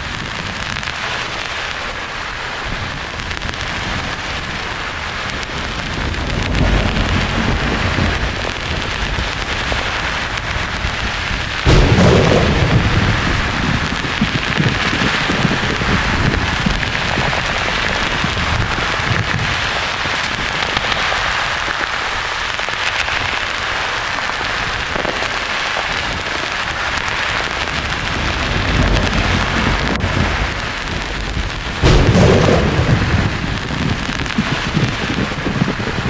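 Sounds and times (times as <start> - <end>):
rain hiss: 0.0 - 36.0
loud thunderclap: 2.7 - 19.8, 27.7 - 36.0
low thunder rumbling: 2.8 - 19.8, 27.7 - 36.0.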